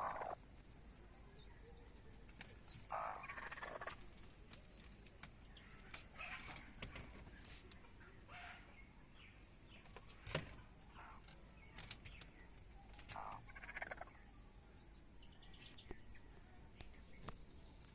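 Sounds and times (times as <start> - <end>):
hen clucking: 0.0 - 0.4, 2.9 - 4.0, 13.0 - 14.1.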